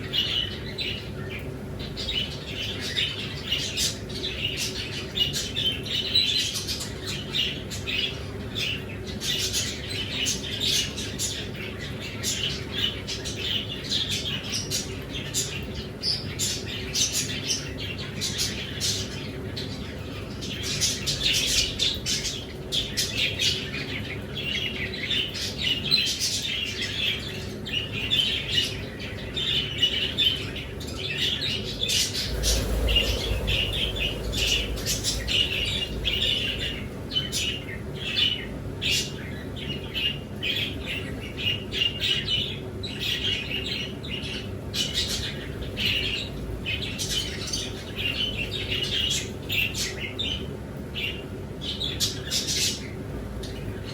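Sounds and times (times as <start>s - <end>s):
small birds chirping and squawking: 0.0s - 53.9s
low rumble: 31.2s - 38.6s.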